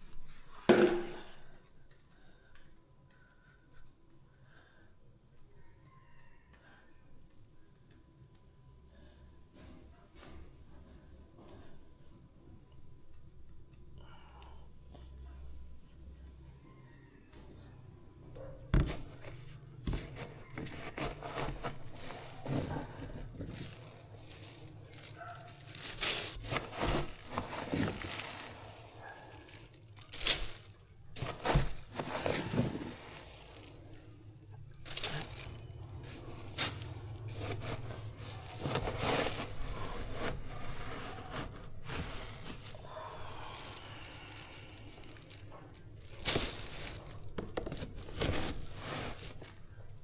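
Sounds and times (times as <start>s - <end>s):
knocks and clatters of handling: 0.0s - 2.2s, 18.4s - 50.0s
rustling: 18.4s - 50.0s.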